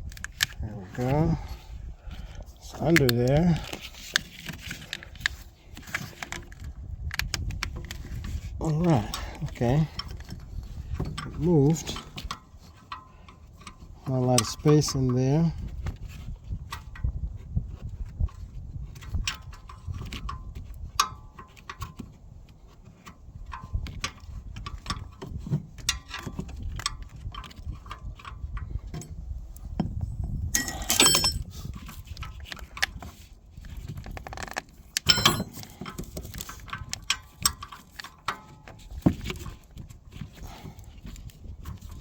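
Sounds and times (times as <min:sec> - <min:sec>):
metal tools clinking on engine parts: 0:28.9 - 0:31.8, 0:35.0 - 0:38.7.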